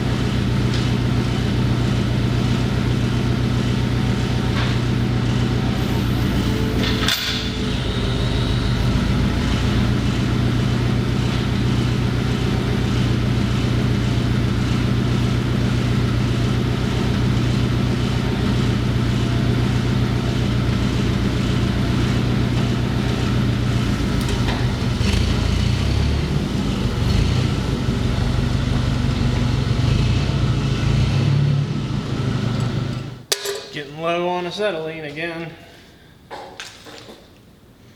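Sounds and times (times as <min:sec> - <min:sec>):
low hum: 0:04.9 - 0:13.5.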